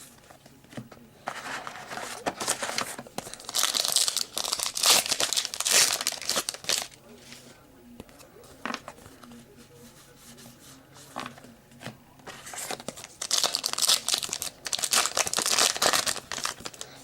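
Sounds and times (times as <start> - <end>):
foil wrapper crinkling: 1.4 - 7.0, 12.4 - 17.0.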